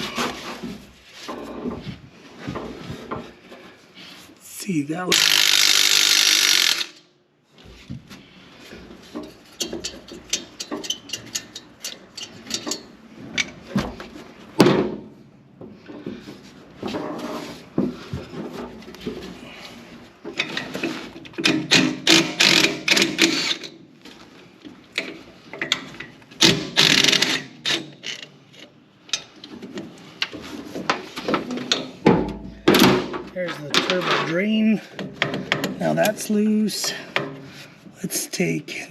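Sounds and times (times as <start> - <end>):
ratchet wrench clicking: 5.2 - 7.0
tools clanking on metal: 9.1 - 13.6.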